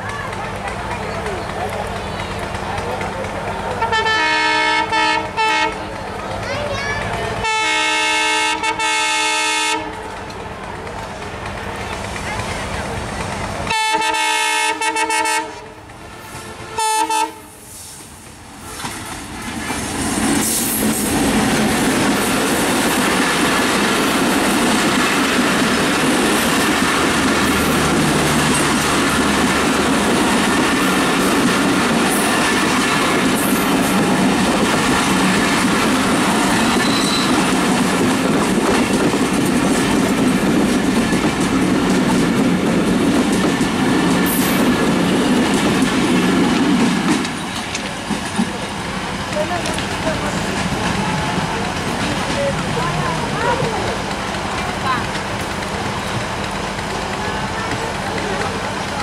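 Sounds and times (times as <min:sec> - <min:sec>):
train passing rumble: 0:00.0 - 0:59.0
locomotive horn blasts: 0:03.8 - 0:05.8, 0:07.4 - 0:10.0, 0:13.7 - 0:17.6.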